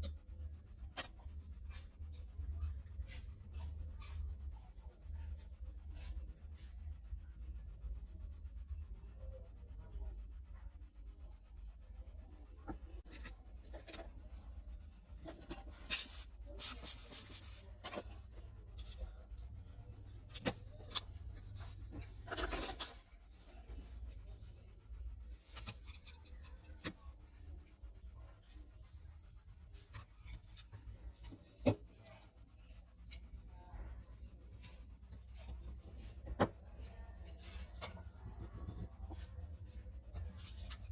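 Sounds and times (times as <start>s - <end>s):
tools scraping on a phone: 12.7s - 40.9s.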